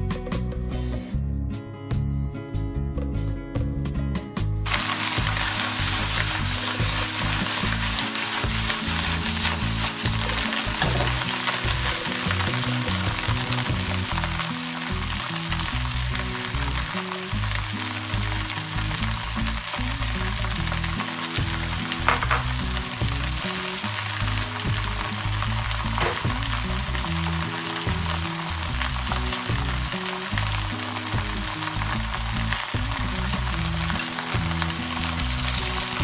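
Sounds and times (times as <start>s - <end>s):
spatula stirring in wok: 4.7s - 12.7s
vegetables sizzling in oil: 4.7s - 36.0s.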